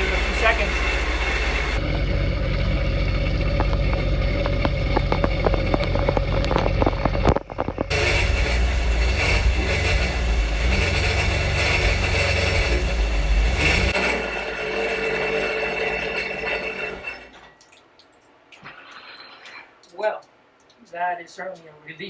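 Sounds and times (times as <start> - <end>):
water running through hose: 0.0 - 1.9, 2.5 - 20.8
jet ski engine idling: 0.0 - 14.0.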